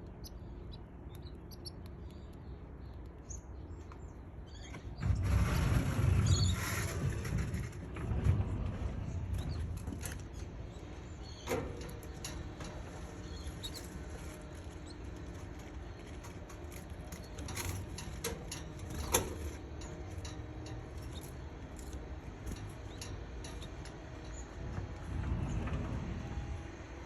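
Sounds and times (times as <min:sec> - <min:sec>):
light scratching and rustling: 0:05.0 - 0:26.5.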